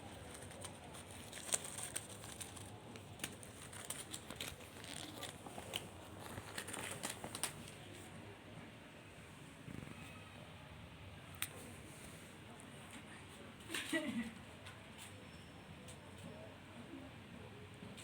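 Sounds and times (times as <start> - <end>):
sharp clicks and crackles: 0.0 - 7.8
kitten rustling and crinkling: 0.0 - 8.3.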